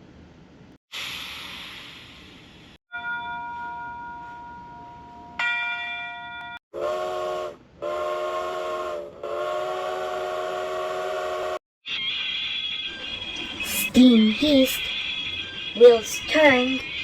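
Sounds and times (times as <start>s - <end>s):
bell-like ringing tone: 2.9s - 6.6s, 12.2s - 17.0s
steam locomotive chime whistle: 6.8s - 17.0s.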